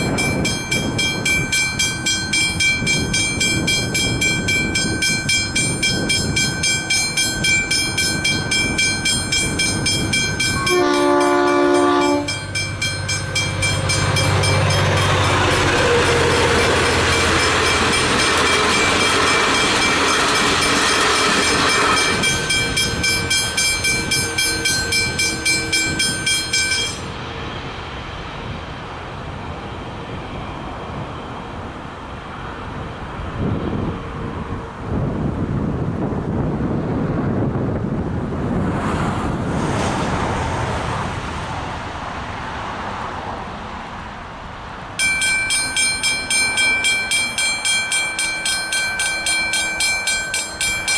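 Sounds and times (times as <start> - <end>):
crossing bell ringing: 0.0 - 27.7, 45.0 - 50.9
train passing: 0.0 - 50.9.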